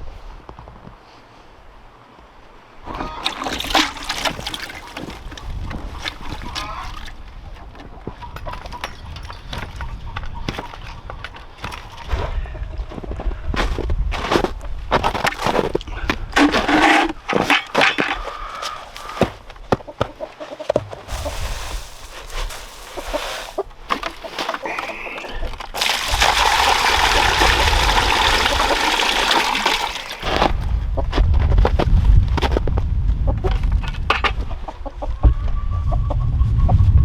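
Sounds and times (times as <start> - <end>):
water pouring: 3.2 - 5.4, 21.1 - 24.8, 25.6 - 30.4.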